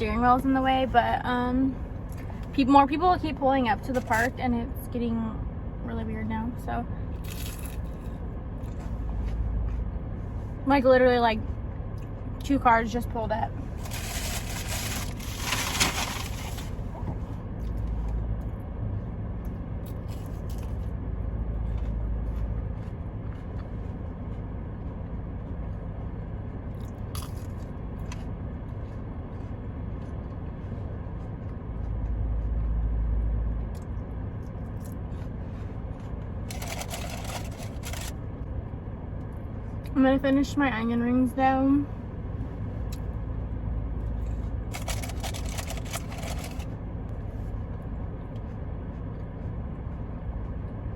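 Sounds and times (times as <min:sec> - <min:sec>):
steady low hum: 0:00.0 - 0:50.9
crunching and chewing food: 0:07.0 - 0:10.4, 0:13.5 - 0:18.7, 0:19.3 - 0:38.6, 0:44.0 - 0:50.9.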